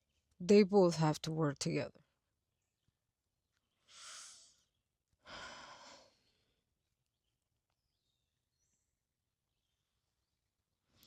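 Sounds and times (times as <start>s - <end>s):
person breathing: 3.8s - 6.6s.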